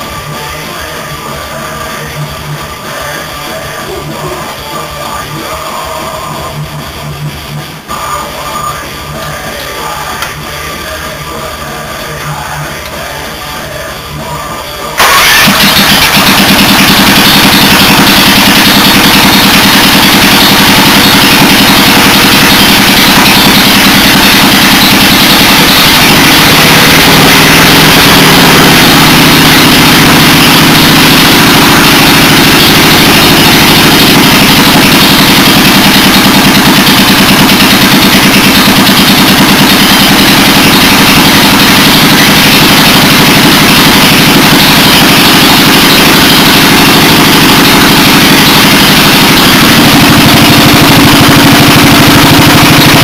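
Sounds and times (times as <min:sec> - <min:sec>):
engine running loud: 0:00.0 - 0:53.0.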